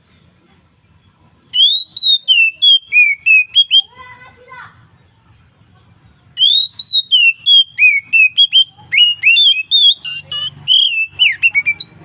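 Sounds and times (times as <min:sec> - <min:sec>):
bird singing whistled notes: 0:01.5 - 0:04.2, 0:06.4 - 0:12.0
harsh rattling bird notes: 0:01.5 - 0:04.5, 0:06.4 - 0:12.0.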